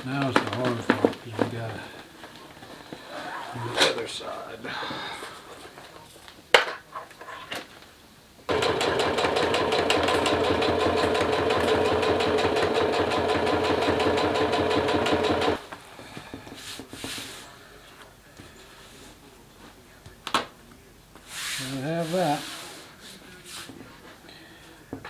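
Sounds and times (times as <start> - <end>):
sewing machine stitching: 8.5 - 15.6.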